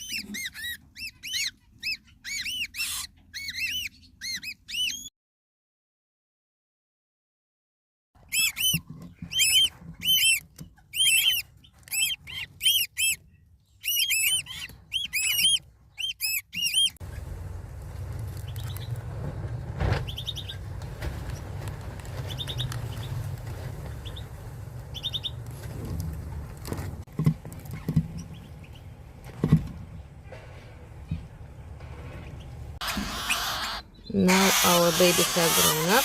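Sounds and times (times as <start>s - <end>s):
parrot chirping: 0.0s - 5.1s, 8.2s - 17.0s, 32.3s - 36.0s
steady low rumble: 17.0s - 27.1s.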